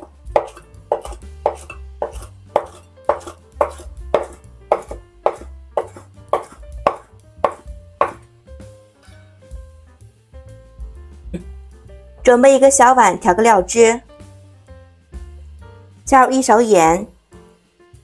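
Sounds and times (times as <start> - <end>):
knife chopping on cutting board: 0.0 - 8.2.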